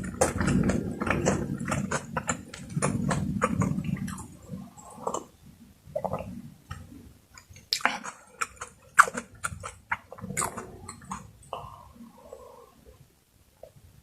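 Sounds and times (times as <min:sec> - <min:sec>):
wet clicks and crackles: 0:00.0 - 0:05.3, 0:05.9 - 0:11.8
person chewing and smacking: 0:00.0 - 0:12.0.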